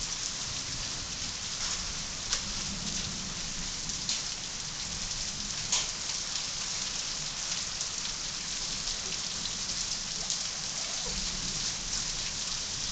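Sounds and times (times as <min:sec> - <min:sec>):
heavy rain pouring: 0:00.0 - 0:12.9.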